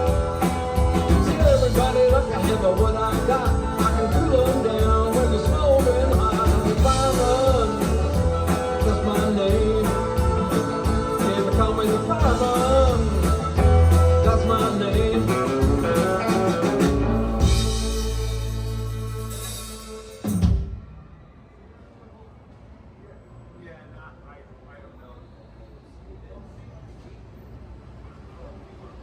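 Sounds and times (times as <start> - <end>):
bending lead guitar line: 0.0 - 19.6
live country band playing: 0.0 - 20.8.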